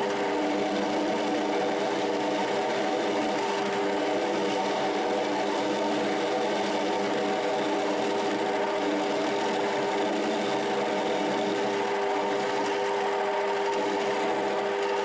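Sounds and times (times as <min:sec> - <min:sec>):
lathe motor whining: 0:05.8 - 0:15.0.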